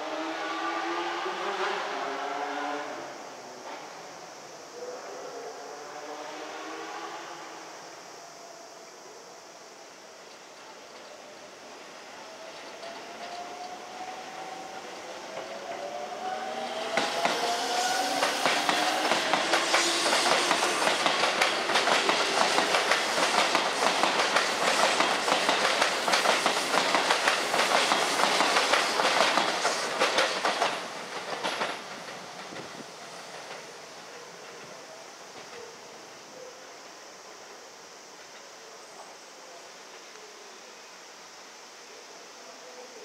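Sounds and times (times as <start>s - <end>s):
wheels clattering over rail joints: 18.3s - 33.8s.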